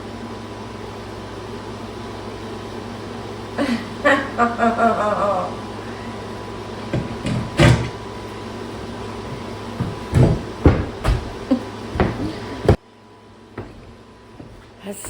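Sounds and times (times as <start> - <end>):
steady hum: 0.0 - 15.0
heavy tools knocking and clunking: 6.8 - 8.1, 8.7 - 12.8, 13.6 - 15.0.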